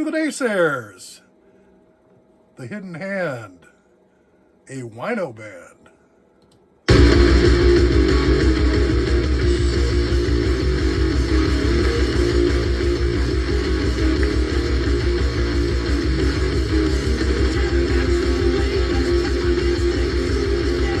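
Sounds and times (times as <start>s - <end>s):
heavy metal rock music: 6.9s - 21.0s.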